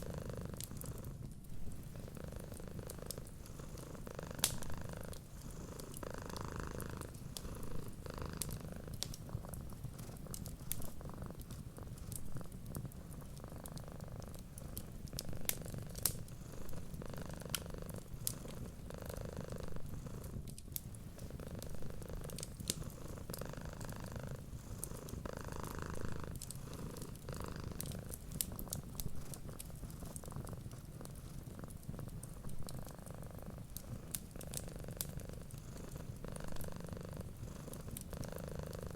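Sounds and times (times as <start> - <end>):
cat purring: 0.0 - 38.9
wood fire crackling: 0.0 - 38.9.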